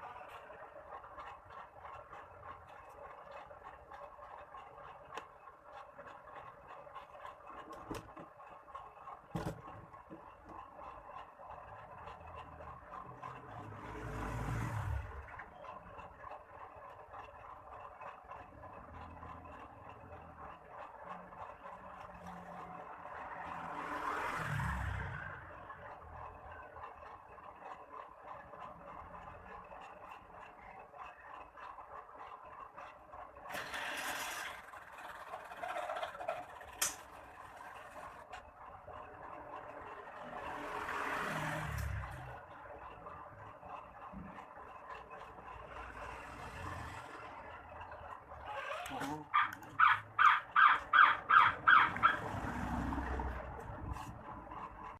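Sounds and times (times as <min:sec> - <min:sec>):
radio-controlled truck running: 0:00.0 - 0:54.9
mechanical clattering and scraping: 0:25.1 - 0:50.9.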